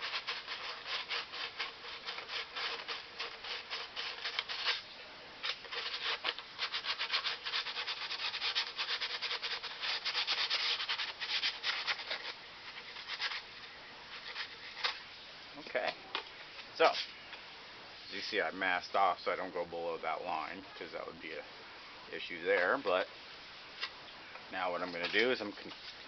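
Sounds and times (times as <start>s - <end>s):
sandpaper rubbing back and forth: 0.0s - 13.5s, 14.1s - 15.0s.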